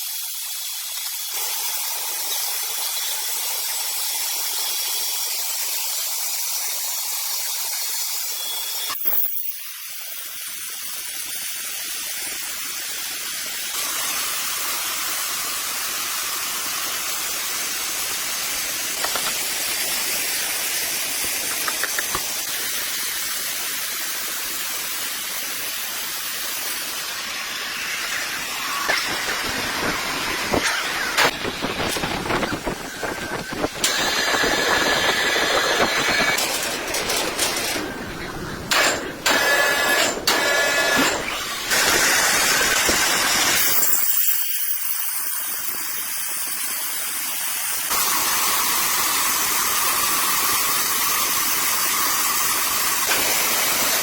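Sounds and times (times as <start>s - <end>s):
saw blade cutting log: 13.7s - 22.6s, 26.1s - 45.7s.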